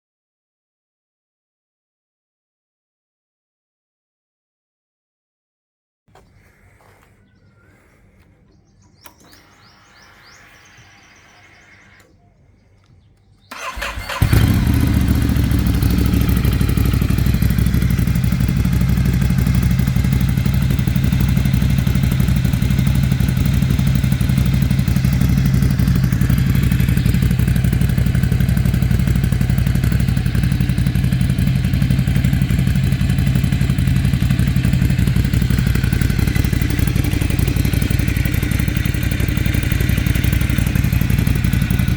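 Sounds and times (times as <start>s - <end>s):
motorcycle engine idling: 6.2s - 41.9s
electric starter cranking: 9.0s - 12.2s, 13.4s - 31.2s.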